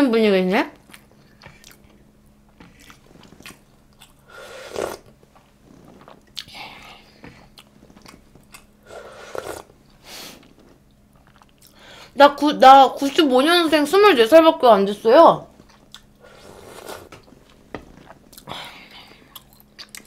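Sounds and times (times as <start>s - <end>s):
person chewing: 0.8s - 11.8s, 15.6s - 20.0s.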